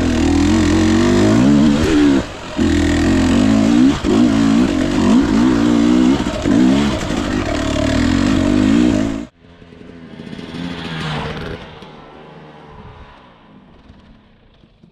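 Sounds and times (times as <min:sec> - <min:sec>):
dirt bike engine revving: 0:00.0 - 0:09.4.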